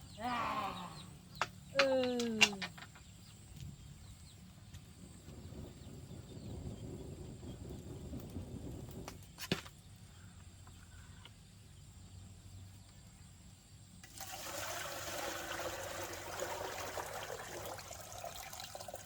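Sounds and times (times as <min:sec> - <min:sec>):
rush of running water: 0:14.0 - 0:19.0.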